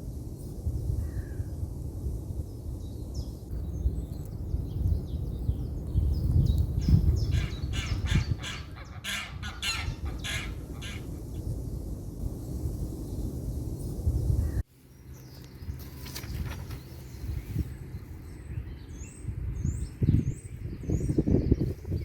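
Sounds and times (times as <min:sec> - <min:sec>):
steady low rumble: 0:03.4 - 0:15.9
birds calling: 0:03.6 - 0:11.5, 0:14.4 - 0:22.0.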